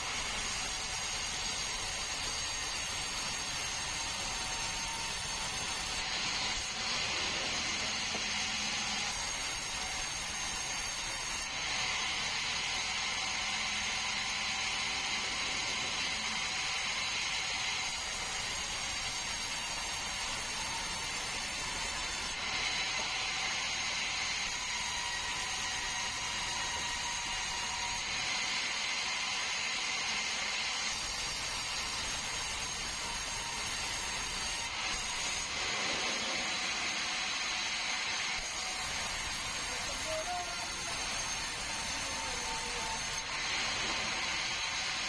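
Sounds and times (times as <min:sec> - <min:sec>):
sawmill saw whining: 0:00.0 - 0:45.0.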